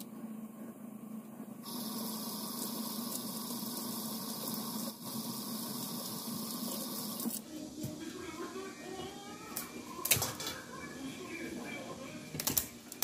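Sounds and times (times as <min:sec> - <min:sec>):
faucet water splashing in sink: 0:01.6 - 0:07.4.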